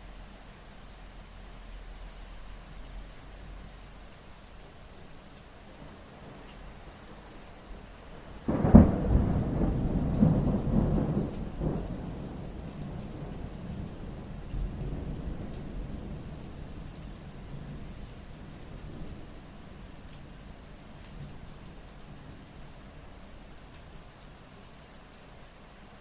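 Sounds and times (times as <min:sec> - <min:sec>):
steady rain: 0:00.0 - 0:26.0
thunder rumbling: 0:08.4 - 0:16.7.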